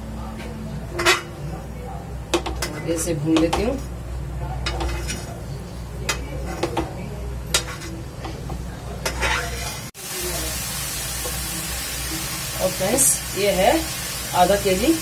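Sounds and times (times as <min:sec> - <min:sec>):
spatula scraping and tapping pan: 0:02.3 - 0:03.9, 0:04.6 - 0:05.4, 0:06.0 - 0:09.9
pumpkin frying sizzle: 0:09.2 - 0:15.0.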